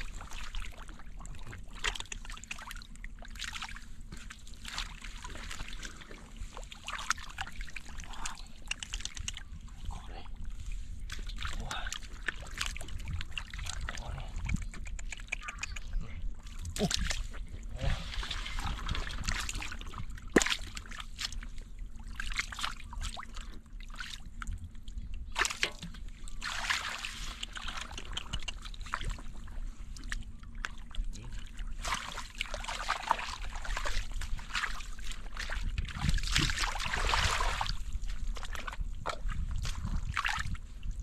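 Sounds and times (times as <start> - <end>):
water splashing and sloshing: 0.0 - 41.0.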